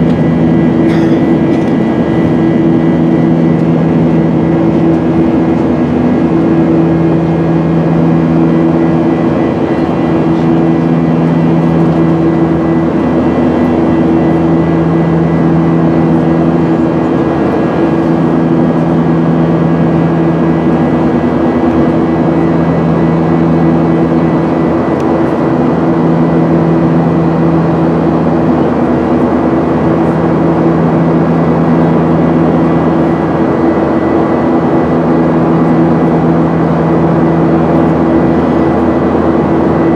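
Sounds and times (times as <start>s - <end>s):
airliner cabin rush: 0.0s - 30.2s
jet engine low hum: 0.0s - 39.9s.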